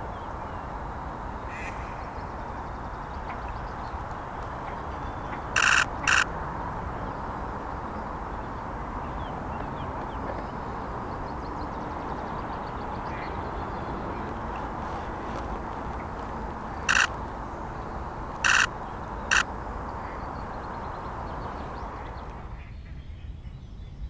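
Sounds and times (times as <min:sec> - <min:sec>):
small birds chirping: 0:00.0 - 0:22.5
short harsh bursts: 0:05.6 - 0:06.2, 0:14.7 - 0:19.5
steady hiss: 0:12.8 - 0:22.4.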